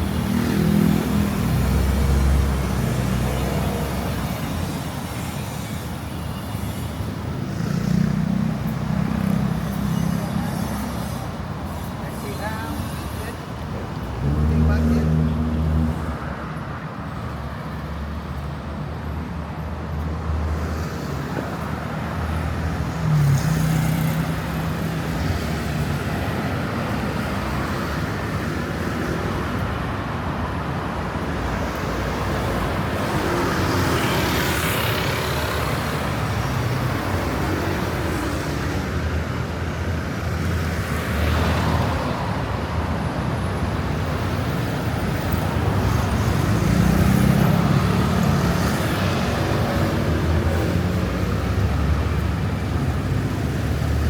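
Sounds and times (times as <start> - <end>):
loud vehicle passing: 0.0 - 4.2, 14.1 - 16.3, 31.5 - 54.0
street traffic: 0.0 - 54.0.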